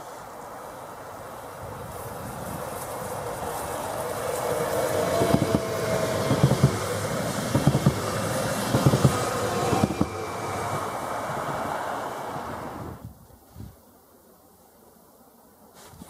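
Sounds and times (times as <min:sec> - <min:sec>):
train rushing past: 0:00.0 - 0:13.0
wheels knocking over rail joints: 0:05.2 - 0:11.7.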